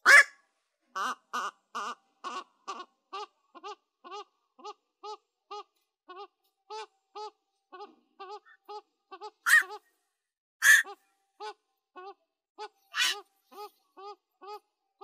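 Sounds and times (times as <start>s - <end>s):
heron croaking call: 0.0s - 0.3s, 9.4s - 9.8s, 10.6s - 10.9s, 13.0s - 13.2s.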